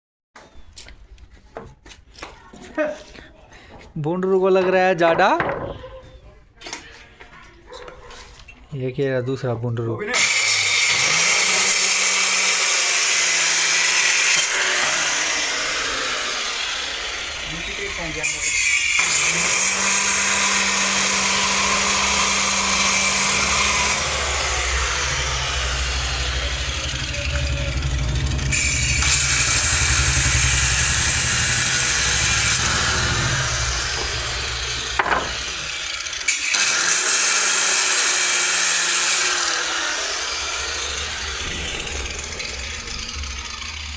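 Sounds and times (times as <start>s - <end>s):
power saw cutting wood: 10.1s - 43.9s
sharp knock: 32.7s - 35.7s.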